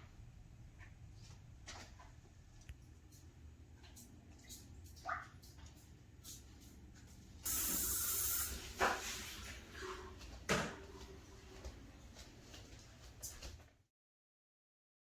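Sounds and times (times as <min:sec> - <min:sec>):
hissing spray: 0:07.5 - 0:09.0.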